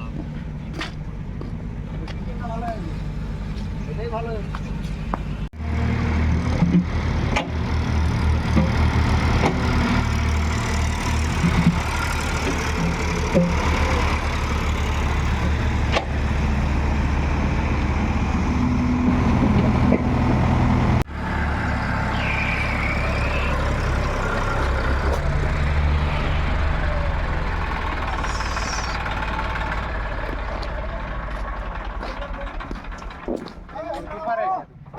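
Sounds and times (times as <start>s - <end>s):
tractor diesel engine running: 0.0s - 34.4s
engine knocks: 6.4s - 21.0s, 23.3s - 34.3s.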